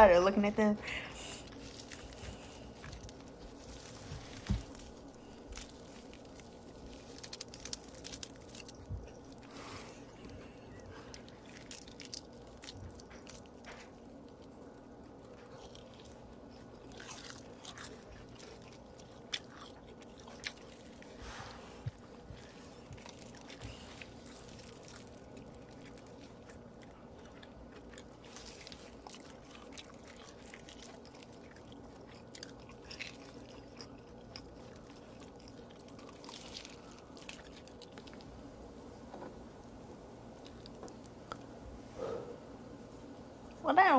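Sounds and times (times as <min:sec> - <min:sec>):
low hum: 0:00.0 - 0:32.0
person chewing food: 0:01.2 - 0:42.4.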